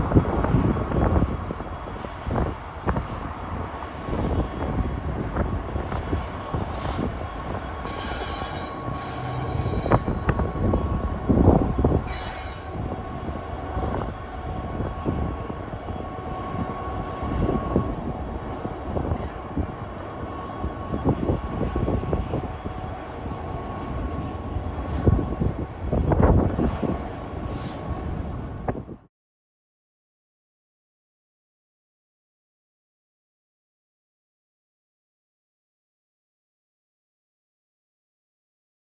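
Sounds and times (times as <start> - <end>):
train running by: 0.0 - 29.1.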